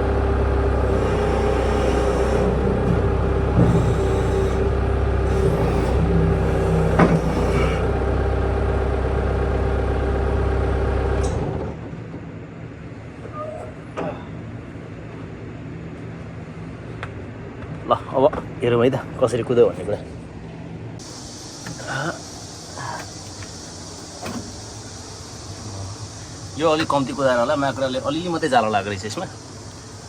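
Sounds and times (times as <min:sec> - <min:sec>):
loader engine running: 0:00.0 - 0:13.3, 0:20.4 - 0:30.0.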